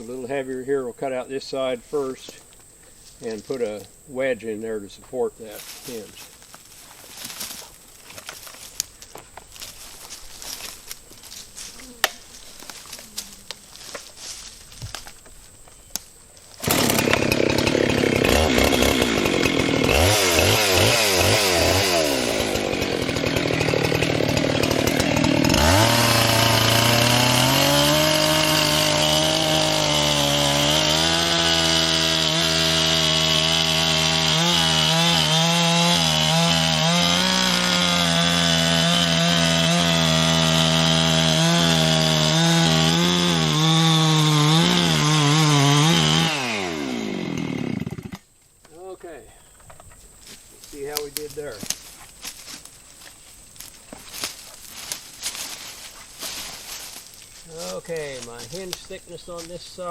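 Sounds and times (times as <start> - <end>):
chainsaw revving and cutting wood: 16.6 - 48.3, 53.6 - 59.9.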